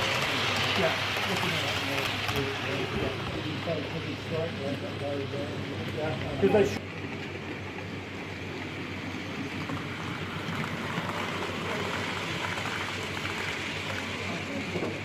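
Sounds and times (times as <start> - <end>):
model train wheels rattling: 0.0 - 4.0.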